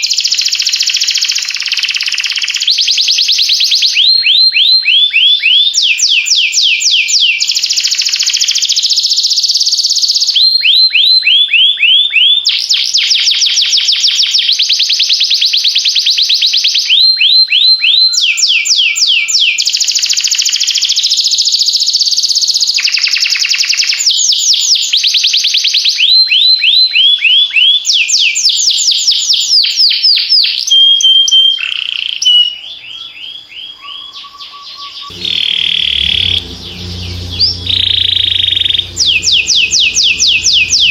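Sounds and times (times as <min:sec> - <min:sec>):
short steady whistles: 0:35.1 - 0:40.9.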